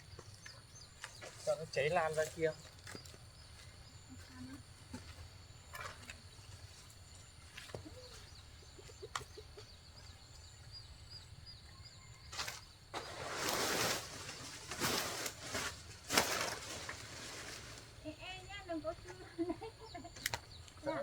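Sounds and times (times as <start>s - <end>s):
faint bird chirps: 0.0s - 13.9s, 18.0s - 21.0s
loud rough rustling: 12.3s - 18.0s.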